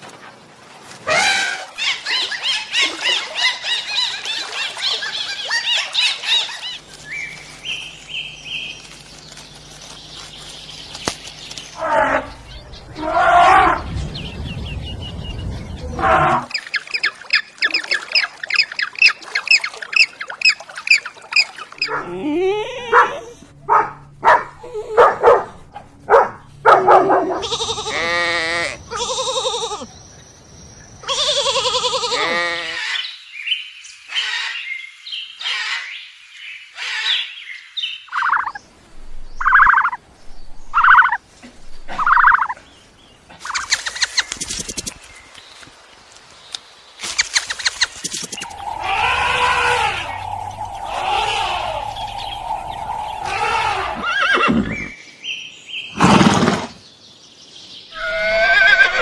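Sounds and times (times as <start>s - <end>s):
varied pitched animal calls: 27.3s - 29.9s, 48.2s - 54.9s, 58.0s - 59.0s
quick repeated chirps: 43.5s - 45.1s, 47.1s - 48.9s
short animal calls: 48.4s - 54.5s.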